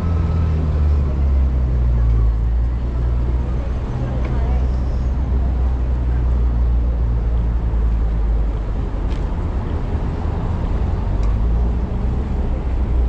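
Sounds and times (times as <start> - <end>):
traffic noise: 0.0 - 13.0.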